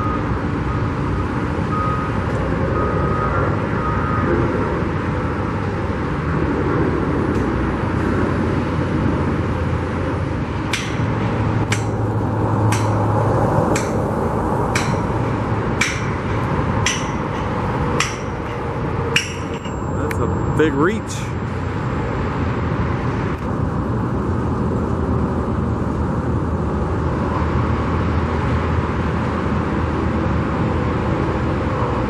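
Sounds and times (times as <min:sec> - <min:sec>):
engine and traffic rumble: 0:00.0 - 0:32.0
hammer blows on steel: 0:12.7 - 0:13.0, 0:14.7 - 0:21.2.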